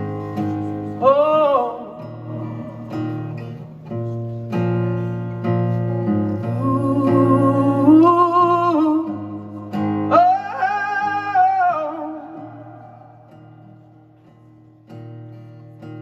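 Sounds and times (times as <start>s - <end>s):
person singing wordless melody: 0.0s - 3.7s, 6.2s - 13.4s
acoustic guitar chords: 0.0s - 16.0s.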